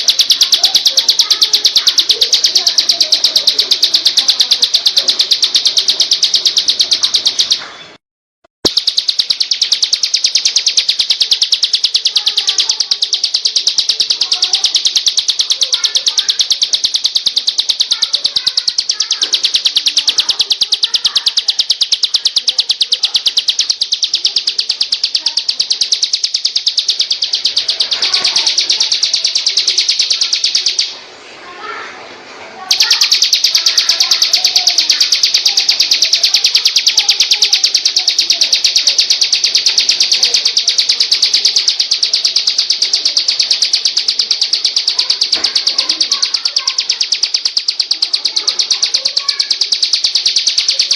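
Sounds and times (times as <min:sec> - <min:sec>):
songbird trilling: 0:00.0 - 0:07.7, 0:08.6 - 0:31.0, 0:32.7 - 0:50.9.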